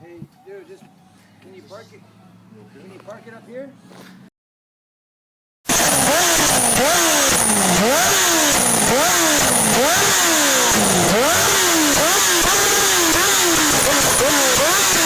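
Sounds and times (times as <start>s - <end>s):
motorcycle engine revving: 5.7s - 15.0s.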